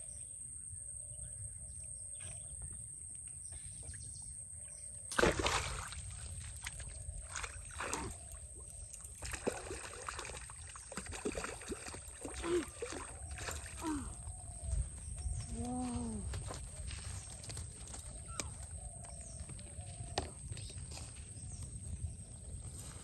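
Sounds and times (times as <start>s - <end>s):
water splashing: 5.1s - 14.4s
wind on microphone: 11.0s - 23.0s.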